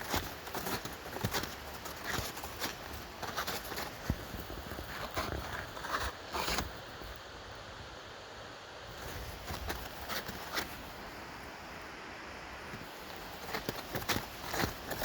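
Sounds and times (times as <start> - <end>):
footsteps crunching on snow: 0.0 - 6.7, 8.9 - 11.2, 12.8 - 15.0.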